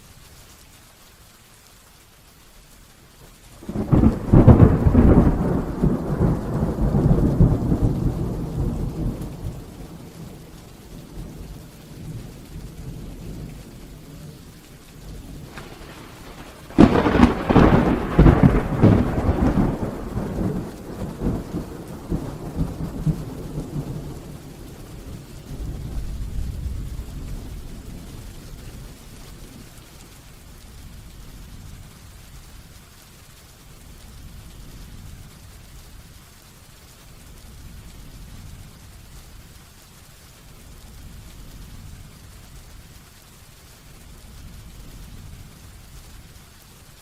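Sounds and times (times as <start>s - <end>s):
heavy rain: 0.0s - 47.0s
thunder clap rolling: 3.6s - 29.8s.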